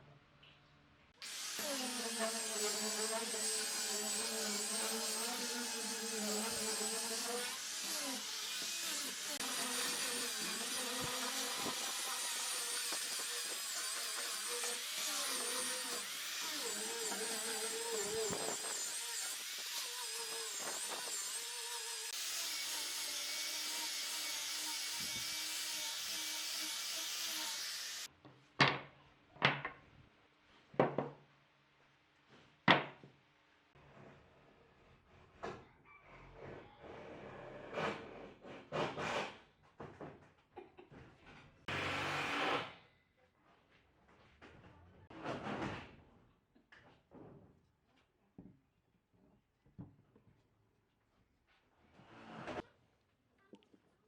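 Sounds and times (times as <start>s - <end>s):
power tool running on wood: 1.2s - 28.1s, 41.7s - 42.6s.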